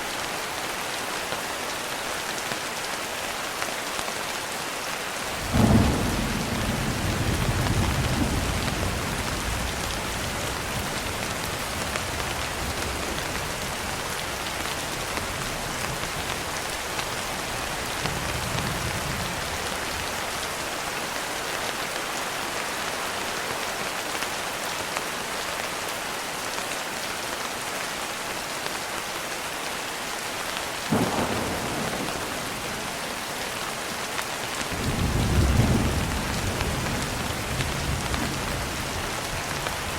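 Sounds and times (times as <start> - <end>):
steady rain: 0.0 - 39.9
thunder rumbling: 5.4 - 14.5, 30.9 - 33.2.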